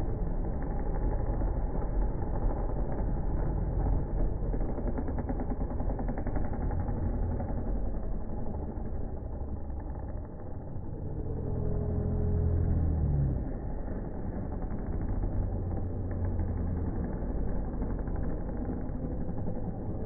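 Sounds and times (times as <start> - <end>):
motocross bike engines: 0.0 - 20.0.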